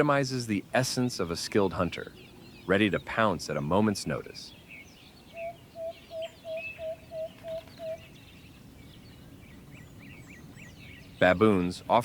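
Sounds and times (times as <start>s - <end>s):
faint high bird chirping: 1.2s - 12.0s
bird calling short notes: 5.3s - 8.1s.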